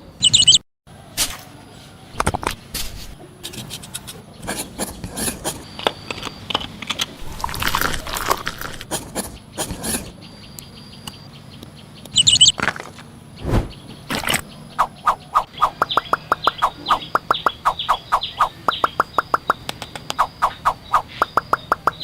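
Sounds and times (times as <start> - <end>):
bird chirping: 0.0 - 0.6, 7.2 - 22.0.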